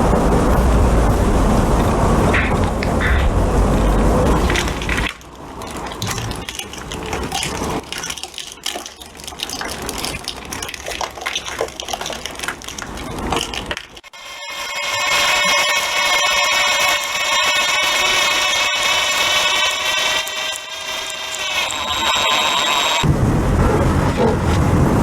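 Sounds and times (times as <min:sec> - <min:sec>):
steady machine hum: 0:00.0 - 0:06.4, 0:14.0 - 0:25.0
brittle crunching and crackling: 0:04.3 - 0:14.1.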